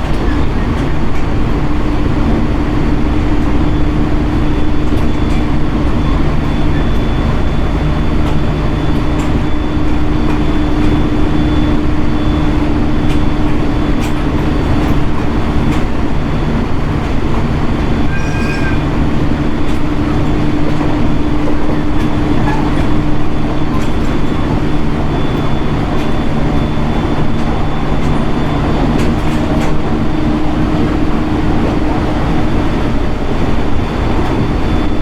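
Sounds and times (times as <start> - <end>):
rail joint clicks: 0.0 - 35.0
train wheels rumbling on rail: 0.0 - 35.0
high-pitched squeal: 18.0 - 19.0.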